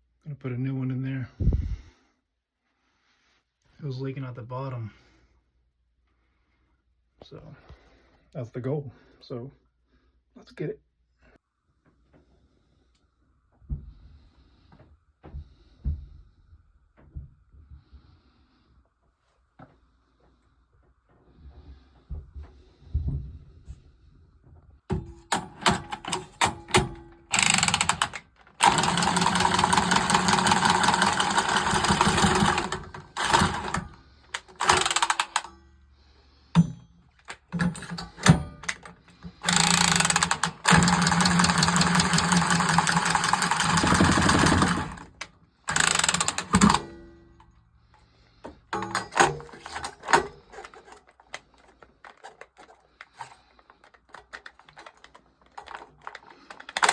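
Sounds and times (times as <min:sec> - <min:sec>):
power tool humming and rattling: 0:24.9 - 0:35.5, 0:37.2 - 0:47.2, 0:51.7 - 0:56.9
clicks and knocks: 0:48.4 - 0:56.9.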